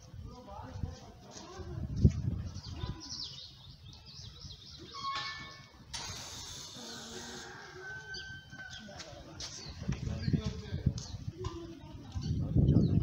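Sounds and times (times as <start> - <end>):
small birds chirping: 0.3 - 5.9, 6.9 - 13.0
steady hiss: 5.9 - 7.8.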